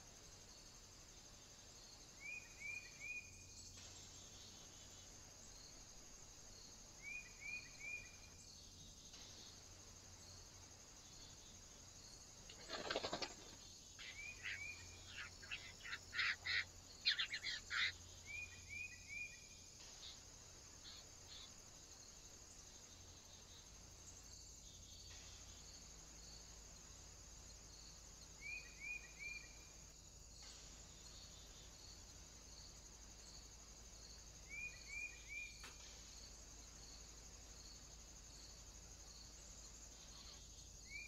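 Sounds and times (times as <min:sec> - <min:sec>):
high insect hiss: 0:00.0 - 0:41.0
wings flapping: 0:12.5 - 0:13.6
jay clicking calls: 0:14.0 - 0:17.9
birds chirping: 0:14.0 - 0:18.5.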